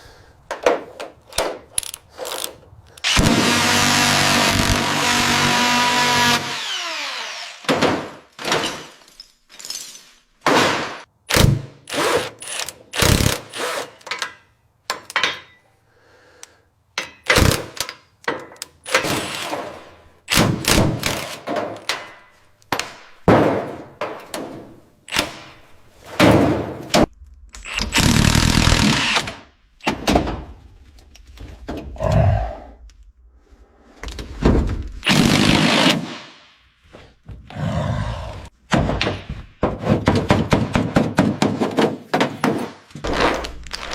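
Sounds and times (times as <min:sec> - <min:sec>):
tool knocks and bangs: 0:07.6 - 0:09.0, 0:18.3 - 0:27.1, 0:29.8 - 0:30.6, 0:38.6 - 0:43.4.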